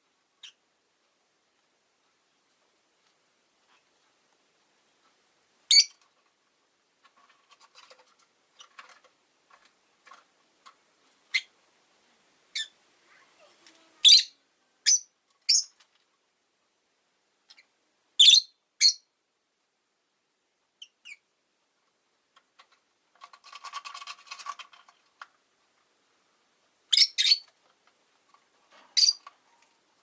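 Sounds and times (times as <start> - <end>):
lovebirds calling: 5.7 - 6.0, 14.0 - 15.8.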